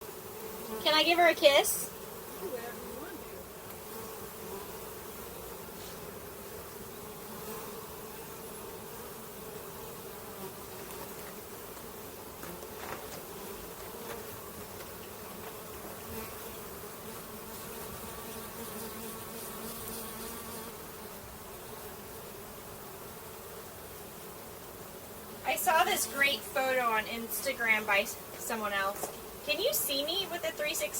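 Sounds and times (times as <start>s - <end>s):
honeybees buzzing: 0.0s - 30.9s.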